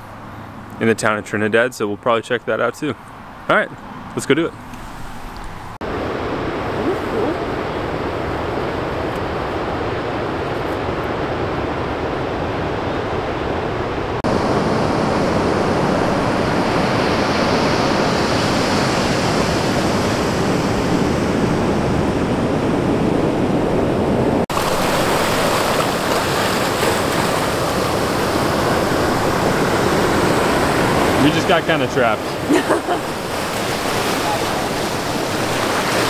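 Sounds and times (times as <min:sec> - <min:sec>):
ocean surf rushing: 0:04.8 - 0:36.0.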